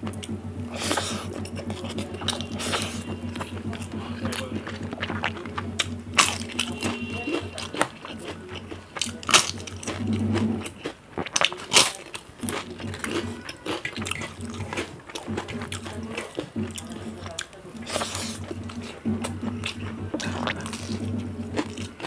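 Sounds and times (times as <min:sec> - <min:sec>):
low hum: 0:00.0 - 0:07.6
person chewing and crunching food: 0:00.0 - 0:22.0
wet mouth sounds: 0:00.0 - 0:22.0.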